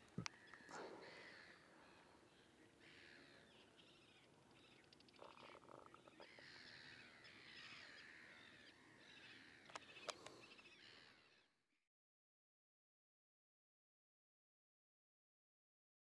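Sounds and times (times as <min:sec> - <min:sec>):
faint birdsong: 0:00.0 - 0:11.9.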